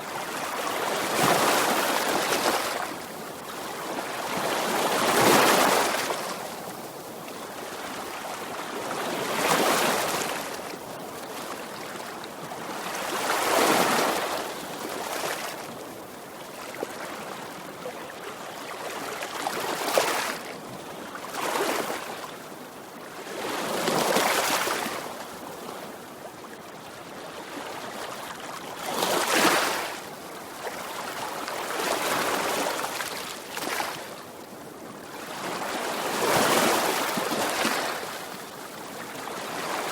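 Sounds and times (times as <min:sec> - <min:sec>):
sea waves breaking on shore: 0:00.0 - 0:22.5, 0:35.0 - 0:39.9.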